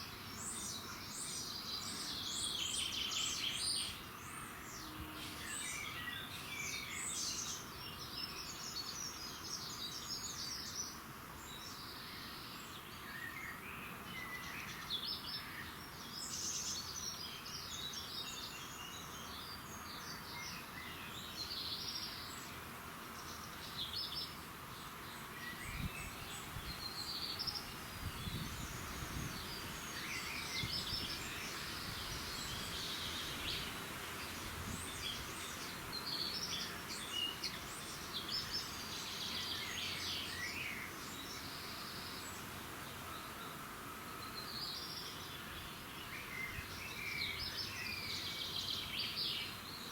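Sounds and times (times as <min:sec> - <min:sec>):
steady outdoor hiss: 0:00.0 - 0:49.9.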